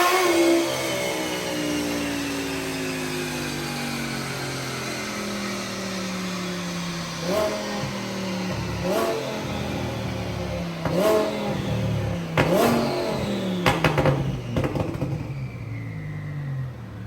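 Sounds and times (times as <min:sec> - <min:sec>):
car engine idling and revving: 0:00.0 - 0:17.0
sharp exhaust cracks: 0:06.9 - 0:16.0.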